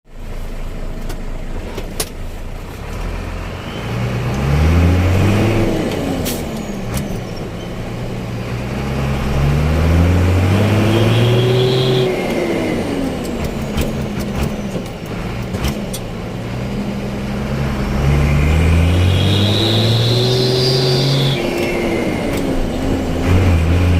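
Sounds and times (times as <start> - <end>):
motorcycle engine revving: 8.3 - 23.9.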